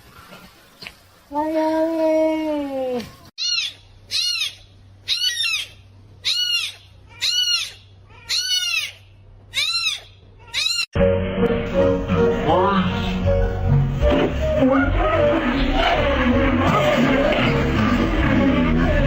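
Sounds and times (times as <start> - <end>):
kitten meowing: 3.4 - 9.0, 9.6 - 10.9
music: 11.0 - 19.0.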